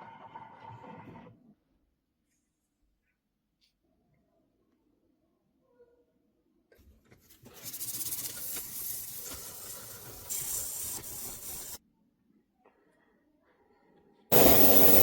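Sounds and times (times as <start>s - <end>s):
hiss of escaping air under pressure: 7.7s - 11.8s, 14.3s - 15.0s.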